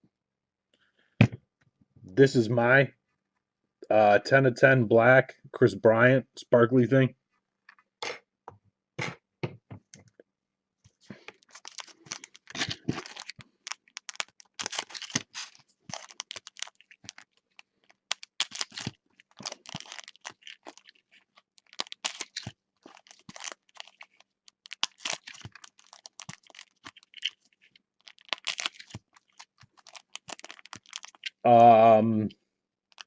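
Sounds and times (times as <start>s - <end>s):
cards and wrappers rustling: 10.9s - 31.8s.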